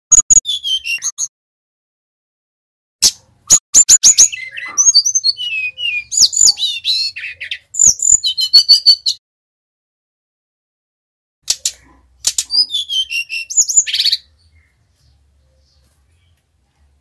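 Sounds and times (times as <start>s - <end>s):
flycatcher singing: 3.5s - 9.2s.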